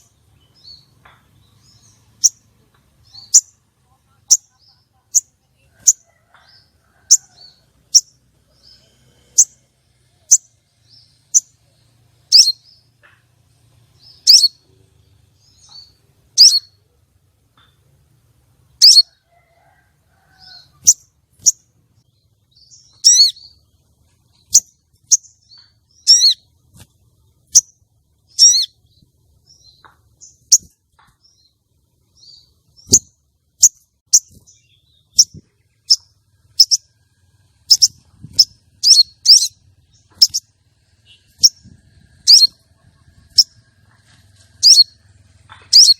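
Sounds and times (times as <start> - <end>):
bird chirping sharply: 12.3 - 13.0, 14.0 - 14.6, 15.4 - 16.8, 18.8 - 19.1, 22.5 - 23.6, 24.4 - 26.5, 27.4 - 28.8, 32.2 - 36.9, 37.7 - 43.6, 44.6 - 45.0.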